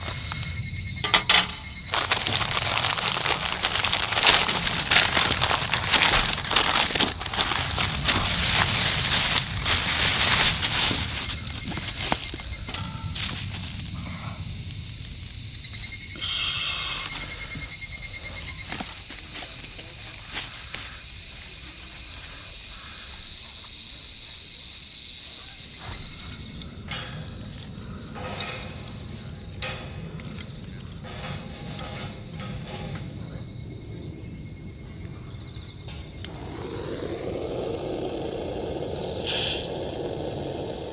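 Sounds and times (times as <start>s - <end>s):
crackling and rustling noise: 0.0s - 14.6s, 25.8s - 35.1s
insects chirring: 0.0s - 40.9s.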